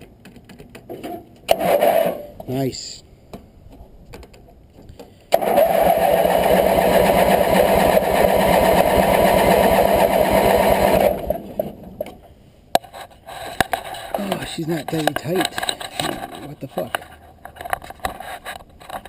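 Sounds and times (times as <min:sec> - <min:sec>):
garden tractor engine starting: 0:01.5 - 0:02.4, 0:05.3 - 0:12.0.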